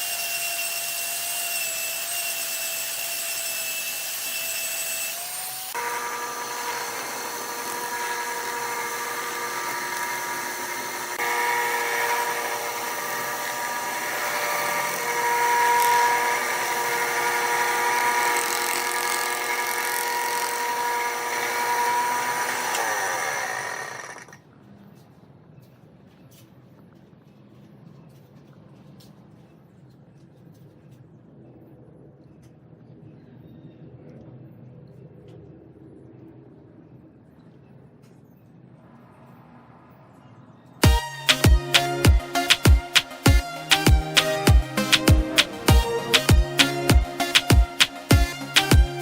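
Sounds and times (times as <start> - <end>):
electric lathe whining: 0.0 - 24.4.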